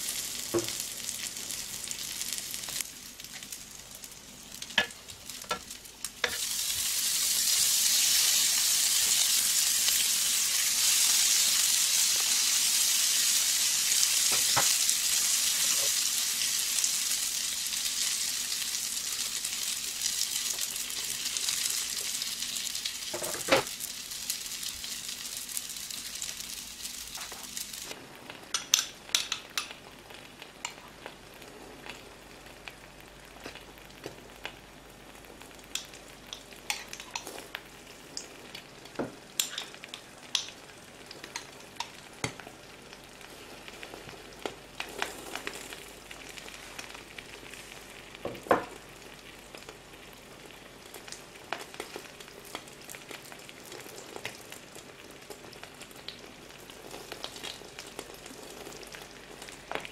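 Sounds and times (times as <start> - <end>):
food sizzling in a pan: 0.0 - 59.9.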